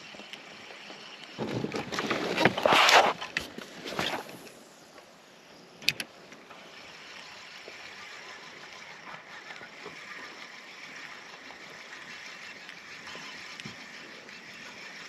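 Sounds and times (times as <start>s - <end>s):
water lapping against kayak hull: 0.2s - 4.6s.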